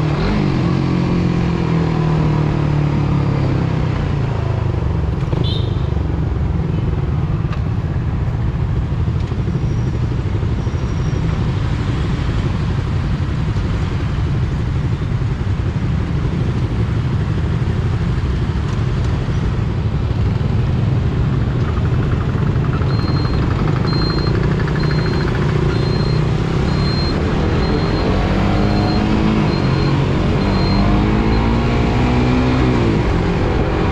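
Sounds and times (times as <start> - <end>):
motorcycle engine running: 15.2 - 31.4
short high beep: 22.8 - 31.8.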